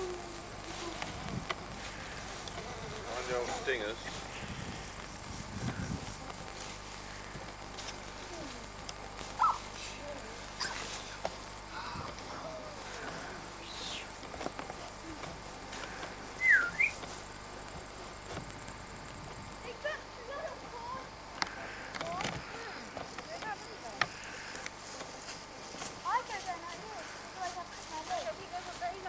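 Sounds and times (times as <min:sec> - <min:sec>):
insects chirring: 0:00.0 - 0:29.0
whistled chirps: 0:16.4 - 0:17.0.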